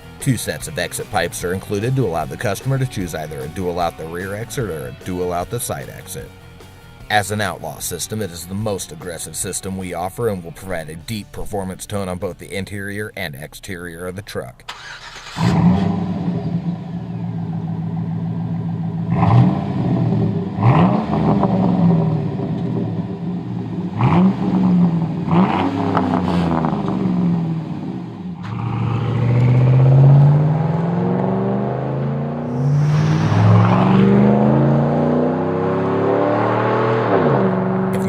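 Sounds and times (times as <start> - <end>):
engine throttle blips: 14.7 - 38.0
truck accelerating hard: 14.7 - 38.0.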